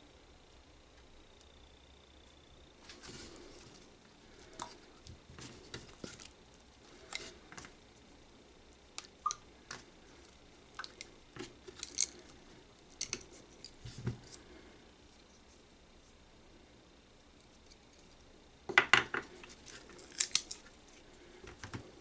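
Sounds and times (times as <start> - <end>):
small hard objects clicking: 11.7 - 13.8.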